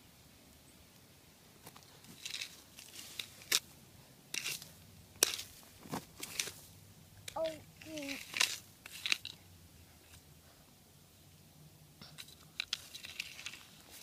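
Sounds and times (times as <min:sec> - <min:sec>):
scratchy rustling and crackling: 0:01.6 - 0:03.7, 0:04.3 - 0:06.8, 0:07.4 - 0:09.4, 0:12.2 - 0:14.0.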